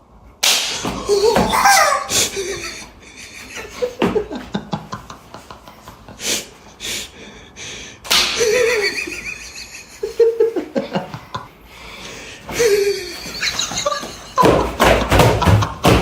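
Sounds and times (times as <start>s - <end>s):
people gasping and breathing: 0.8s - 4.5s, 11.0s - 16.0s
stifled laughter: 1.1s - 6.3s, 8.4s - 11.6s, 12.5s - 15.9s.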